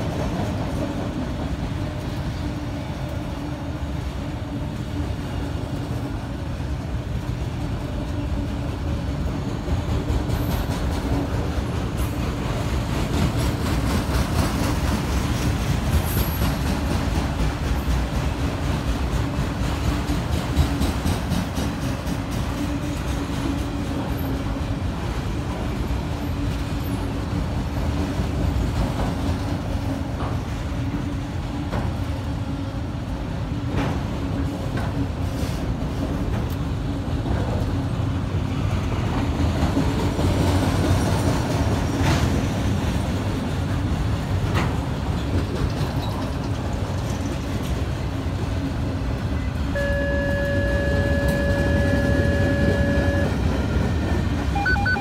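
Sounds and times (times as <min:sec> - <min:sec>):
train wheels rumbling on rail: 0:00.0 - 0:55.0
steady high tone: 0:49.8 - 0:53.5, 0:54.6 - 0:55.0.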